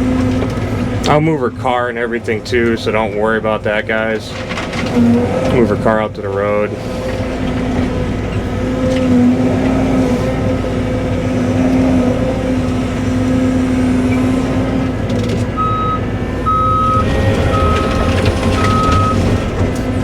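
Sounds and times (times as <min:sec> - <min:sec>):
excavator diesel engine running: 0:00.0 - 0:20.0
travel alarm beeping: 0:15.6 - 0:19.4.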